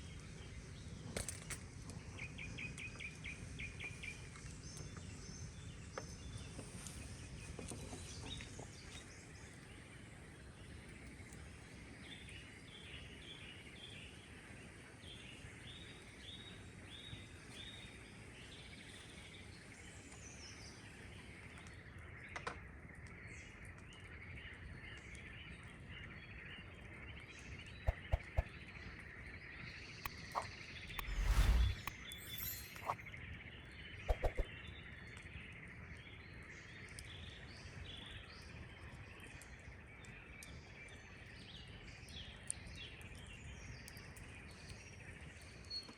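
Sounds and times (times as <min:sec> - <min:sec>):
chorus of small chirps: 0:27.5 - 0:28.7, 0:29.6 - 0:33.1
sharp clicks or snaps: 0:27.9 - 0:28.5, 0:30.3 - 0:33.0.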